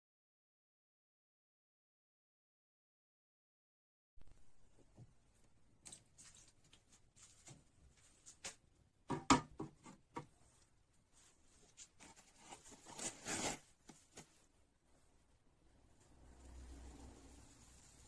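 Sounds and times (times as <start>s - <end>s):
knocks: 9.1s - 10.3s
rubbing scrape: 11.3s - 14.3s.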